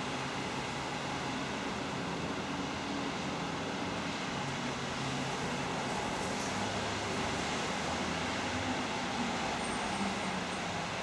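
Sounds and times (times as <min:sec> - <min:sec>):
traffic noise: 0:05.0 - 0:11.0.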